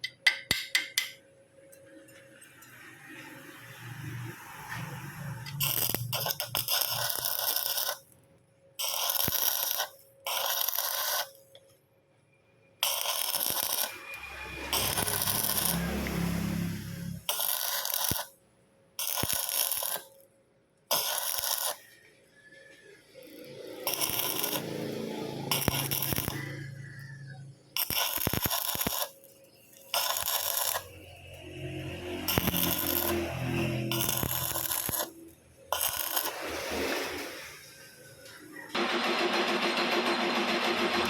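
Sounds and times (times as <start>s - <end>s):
arc welding crackling hiss: 4.5s - 8.1s, 8.8s - 11.5s, 12.8s - 18.3s, 19.0s - 20.2s, 20.9s - 21.9s, 23.1s - 26.6s, 27.8s - 37.6s.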